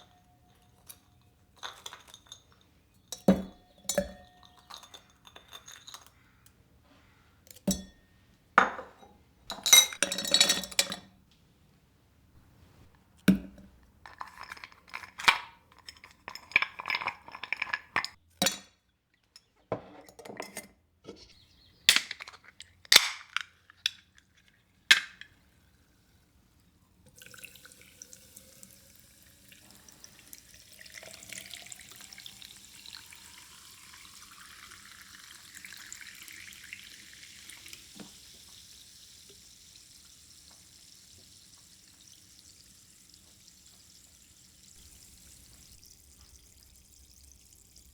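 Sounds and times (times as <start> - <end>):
dishes clinking: 0.0 - 6.3, 7.6 - 11.1, 13.3 - 24.2
water running into container: 24.7 - 47.9.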